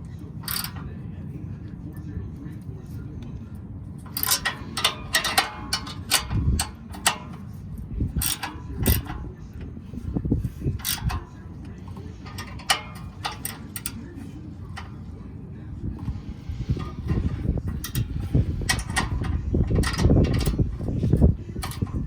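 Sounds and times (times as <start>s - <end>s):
hand tools clicking on metal: 0.4s - 0.9s, 4.0s - 15.1s, 16.0s - 22.0s.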